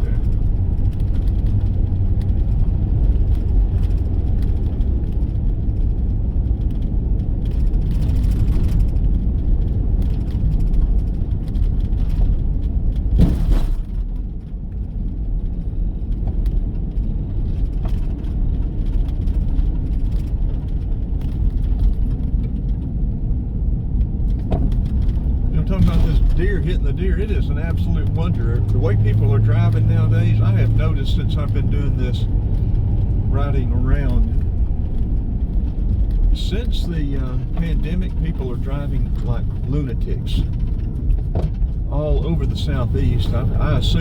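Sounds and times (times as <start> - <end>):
road and engine rumble: 0.0 - 44.0
car bump: 13.1 - 14.0.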